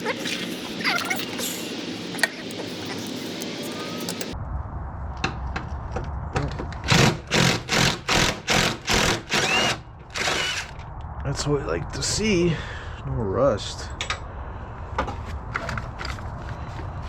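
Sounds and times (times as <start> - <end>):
impact wrench bursts: 6.9 - 10.7.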